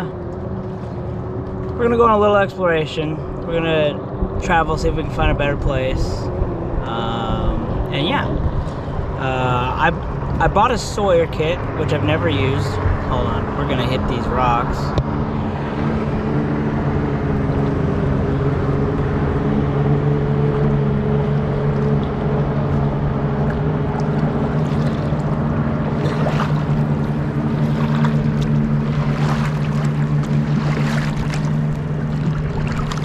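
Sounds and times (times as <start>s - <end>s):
boat motor running: 0.0s - 33.0s
water wash: 0.0s - 33.0s
splashy knocks: 23.4s - 33.0s.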